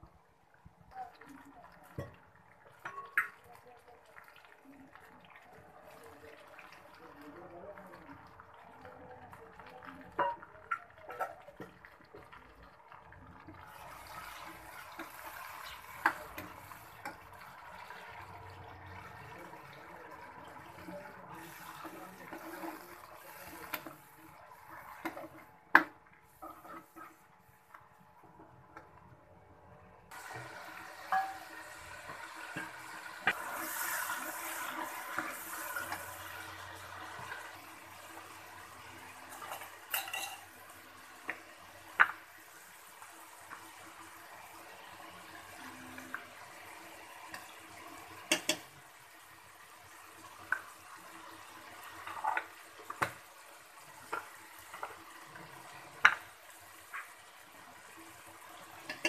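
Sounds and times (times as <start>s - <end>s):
onions sizzling in hot oil: 1.6s - 27.4s, 30.1s - 59.0s
metal ladle clinking on pot: 39.4s - 40.5s.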